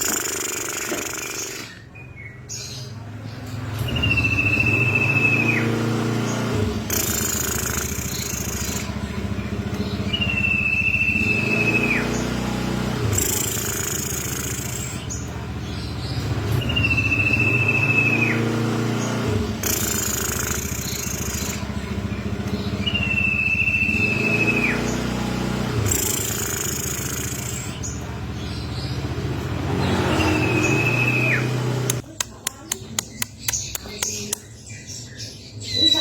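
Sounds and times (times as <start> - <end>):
motor vehicle engine drone: 0.0 - 35.8
bird whistling: 3.8 - 5.9, 6.9 - 9.0, 9.8 - 12.4, 13.1 - 15.1, 16.5 - 18.6, 19.6 - 22.0, 22.7 - 25.1, 25.8 - 28.0, 29.8 - 32.0, 35.6 - 36.0.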